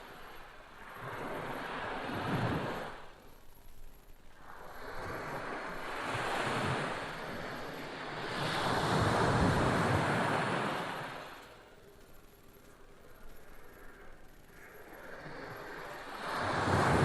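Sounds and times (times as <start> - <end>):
waves breaking: 4.6 - 11.6.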